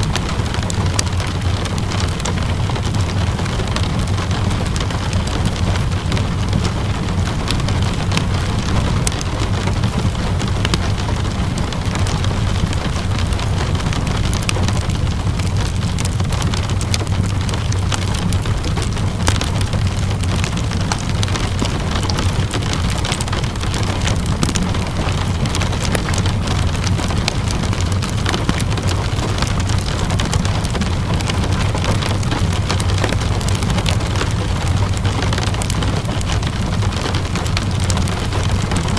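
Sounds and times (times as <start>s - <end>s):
low rumble: 0.0s - 38.9s
steady rainfall: 0.0s - 38.9s
wood fire crackling: 0.0s - 38.9s.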